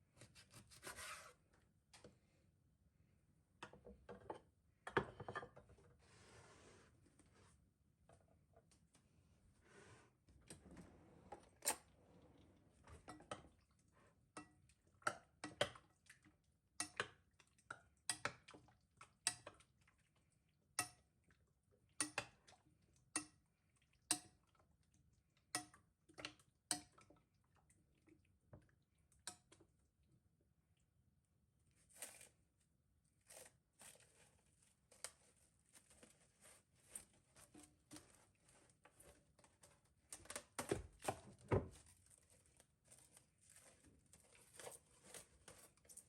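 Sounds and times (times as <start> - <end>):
kitchenware clicking and knocking: 3.7 - 5.7.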